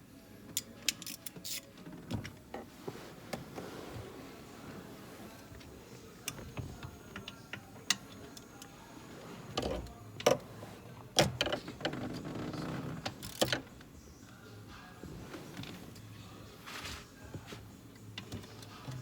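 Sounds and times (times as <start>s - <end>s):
hand tools and metal parts clicking: 0.6s - 1.7s.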